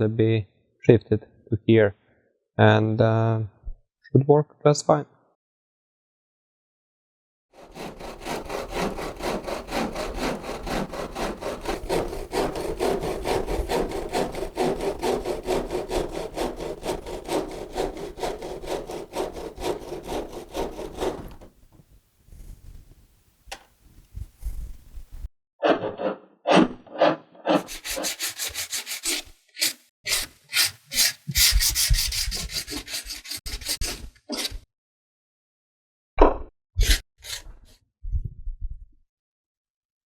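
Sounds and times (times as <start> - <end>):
saw cutting wood: 7.6 - 21.6, 25.6 - 34.6.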